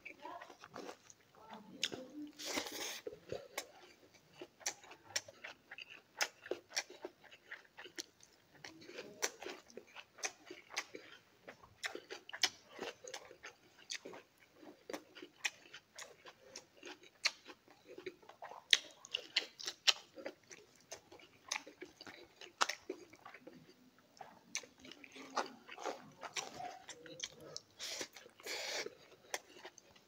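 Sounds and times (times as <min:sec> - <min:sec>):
wet chewing and lip smacking: 0:00.0 - 0:30.0
rustle of food: 0:02.2 - 0:03.1.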